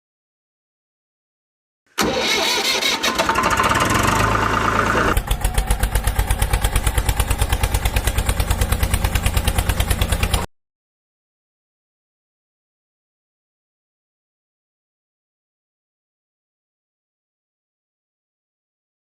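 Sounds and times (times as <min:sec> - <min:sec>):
tractor engine chugging: 0:02.0 - 0:10.5.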